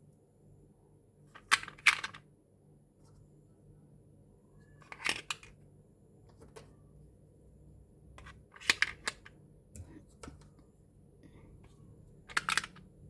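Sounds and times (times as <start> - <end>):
plastic toy pieces clicking: 1.4 - 2.2, 8.2 - 9.3, 12.3 - 12.9.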